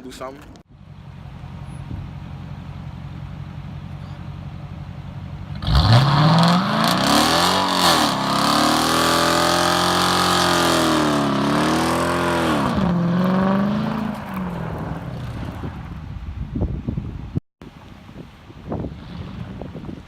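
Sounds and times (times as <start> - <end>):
car engine revving: 4.9 - 16.0.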